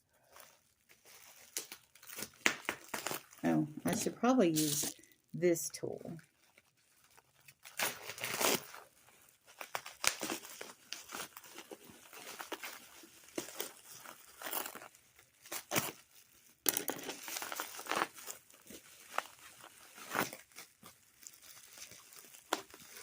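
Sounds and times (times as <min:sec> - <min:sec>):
bubble wrap crinkling and tearing: 0:00.0 - 0:23.0.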